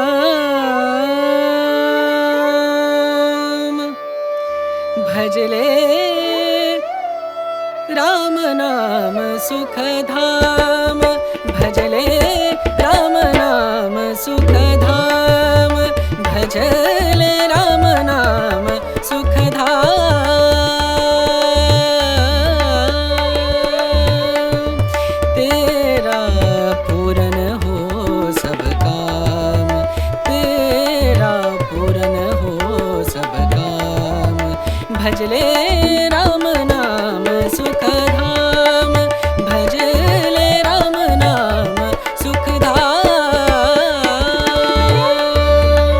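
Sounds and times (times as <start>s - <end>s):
tabla drum strokes: 14.4s - 21.8s.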